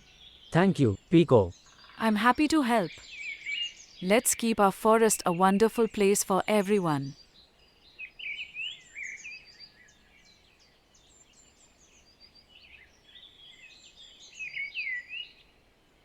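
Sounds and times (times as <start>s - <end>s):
small birds chirping and whistling: 7.7s - 10.4s, 11.0s - 15.4s.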